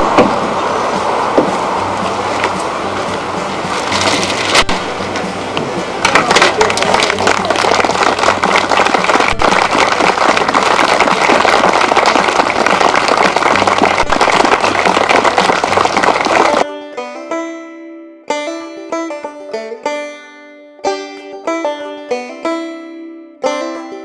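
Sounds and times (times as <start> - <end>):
plucked-string music: 0.0 - 24.0
audience applause: 6.0 - 16.6.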